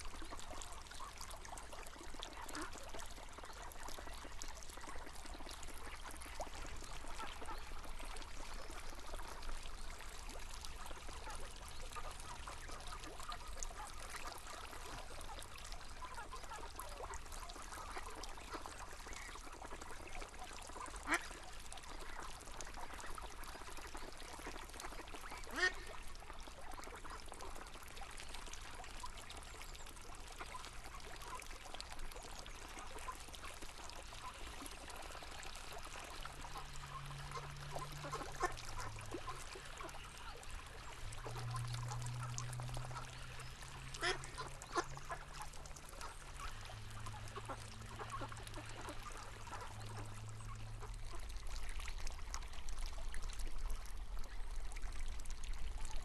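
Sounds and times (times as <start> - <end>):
low steady hum: 0.0 - 56.0
river water flowing: 0.0 - 56.0
ducks quacking: 20.9 - 21.4, 24.4 - 26.0, 34.2 - 51.2.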